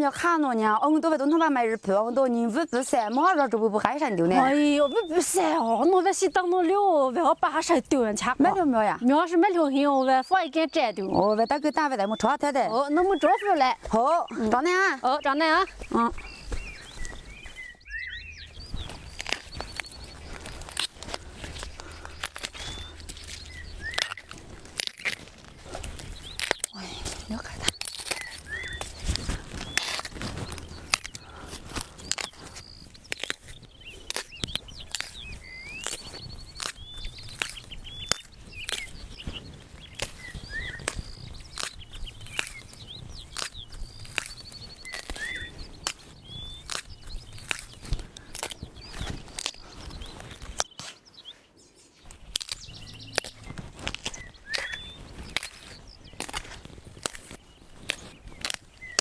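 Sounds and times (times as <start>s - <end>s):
small birds chirping and whistling: 0.6s - 59.0s
footsteps through brush and dry leaves: 13.0s - 59.0s.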